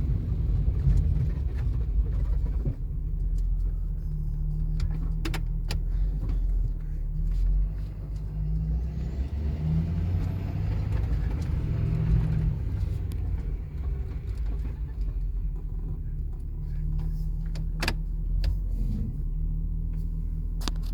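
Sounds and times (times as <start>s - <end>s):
truck engine rumbling: 0.0s - 20.9s.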